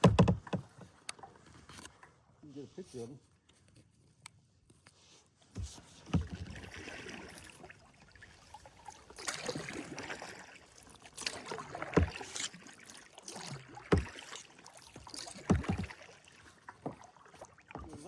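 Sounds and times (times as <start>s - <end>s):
sharp knocks: 0.0s - 0.9s, 15.4s - 15.9s
paddle splashing through water: 5.5s - 18.0s.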